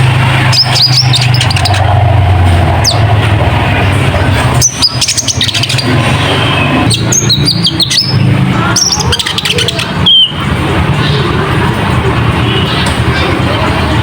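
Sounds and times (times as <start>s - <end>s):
bird twittering chirps: 0.3s - 2.0s, 2.7s - 3.3s, 4.4s - 11.3s.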